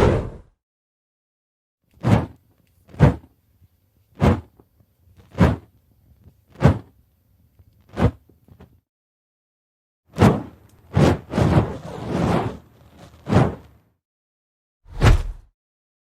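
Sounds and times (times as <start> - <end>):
fire torch whooshing: 0.0 - 0.5, 10.9 - 13.7, 14.9 - 15.5.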